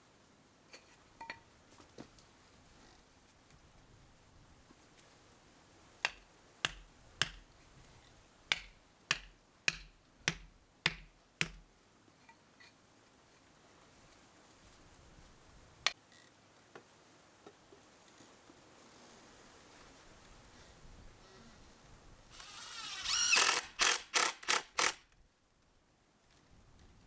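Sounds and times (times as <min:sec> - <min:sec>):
sharp knocks: 0:06.1 - 0:07.4, 0:08.5 - 0:11.6.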